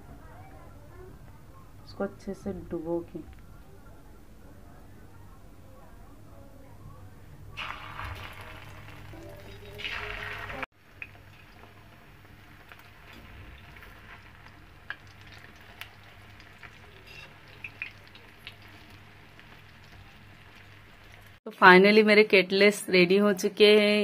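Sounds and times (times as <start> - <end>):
bread frying in oil: 7.5 - 21.4.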